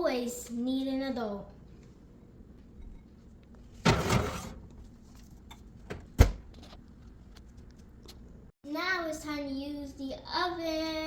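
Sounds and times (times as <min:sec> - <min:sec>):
metal oven door clack: 0:03.8 - 0:04.6
tray scraping slide: 0:03.8 - 0:04.7.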